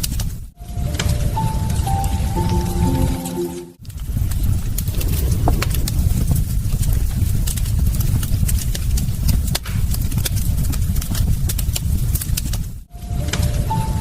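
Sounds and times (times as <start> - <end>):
low steady fire rumble: 3.8 - 14.0
wood fire crackling: 3.8 - 14.0.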